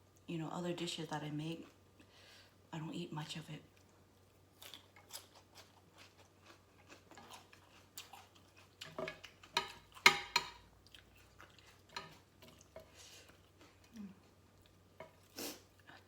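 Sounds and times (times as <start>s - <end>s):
person chewing and crunching food: 3.7s - 16.0s.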